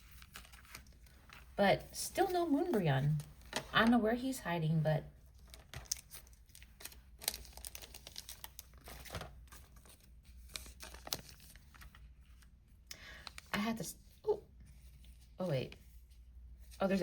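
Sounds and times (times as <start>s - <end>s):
foil wrapper crinkling: 0.0s - 1.5s, 5.2s - 13.6s
cards being handled: 5.3s - 12.5s.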